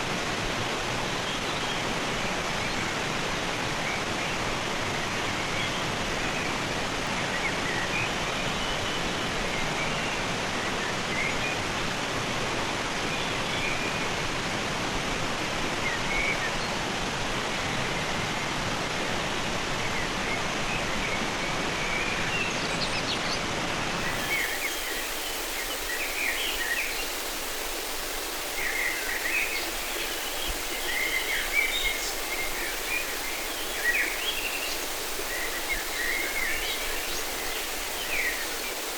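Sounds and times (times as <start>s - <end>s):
river water rushing: 23.9s - 38.9s
birds chirping: 24.0s - 38.9s.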